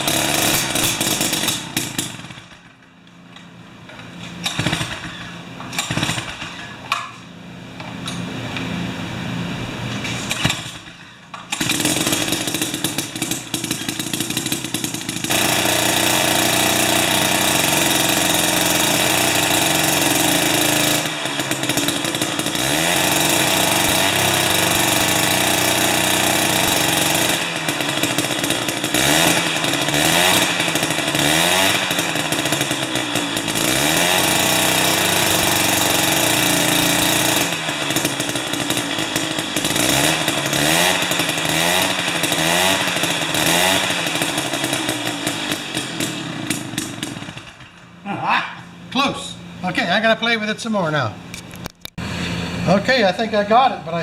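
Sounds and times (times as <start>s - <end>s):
small two-stroke engine revving: 0.0s - 2.6s, 4.4s - 6.8s, 11.5s - 47.7s.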